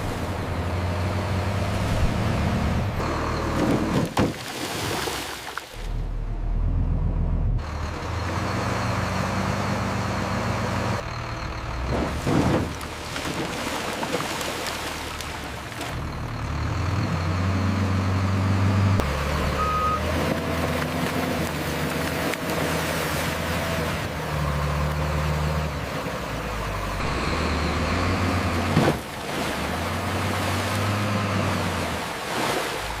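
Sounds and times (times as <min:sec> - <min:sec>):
heavy truck engine running: 0:00.0 - 0:04.2, 0:05.9 - 0:13.6, 0:15.0 - 0:31.8
high beep: 0:19.6 - 0:20.0.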